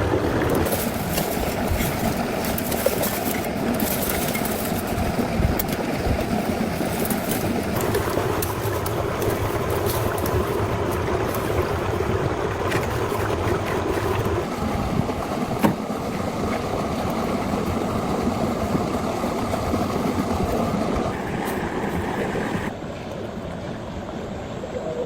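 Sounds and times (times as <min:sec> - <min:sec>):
mechanical running noise: 0:00.0 - 0:23.3.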